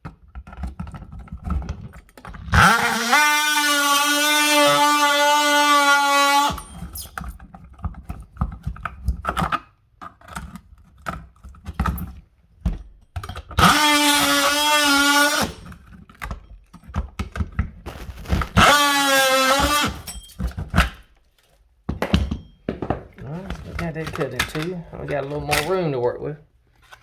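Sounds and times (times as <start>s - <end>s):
power saw whining: 2.3s - 7.2s, 13.6s - 15.8s, 18.5s - 20.4s
handling clicks and knocks: 20.4s - 26.0s.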